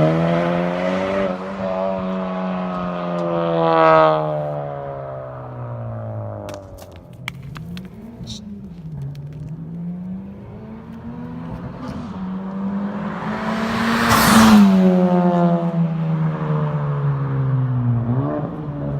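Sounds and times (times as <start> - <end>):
car engine driving by: 8.0 - 18.9.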